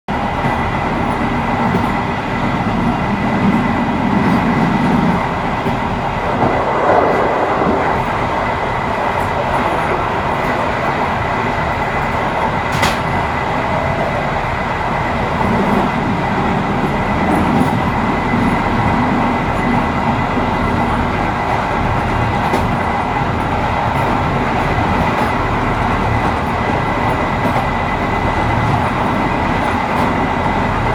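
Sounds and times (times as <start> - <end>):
train wheels rumbling on rails: 0.1 - 30.9.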